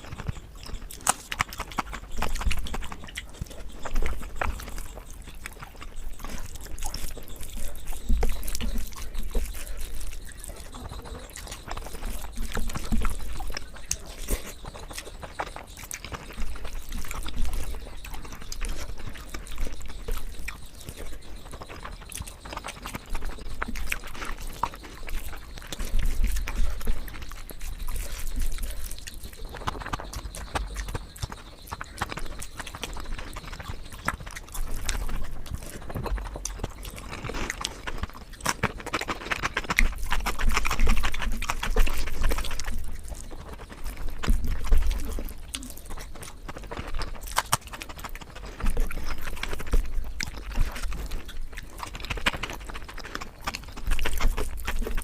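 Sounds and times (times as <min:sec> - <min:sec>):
chewing and lip smacking: 0:00.0 - 0:55.0.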